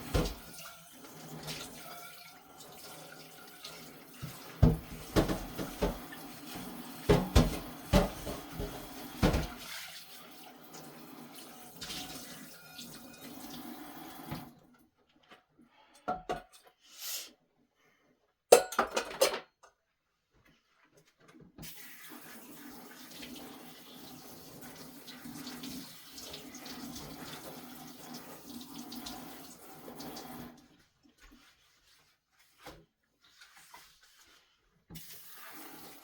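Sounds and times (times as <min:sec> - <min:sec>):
tap running into sink: 0:00.0 - 0:00.6, 0:04.2 - 0:09.7
dishes clinking and clattering: 0:04.6 - 0:09.6, 0:16.1 - 0:16.6, 0:18.5 - 0:19.7.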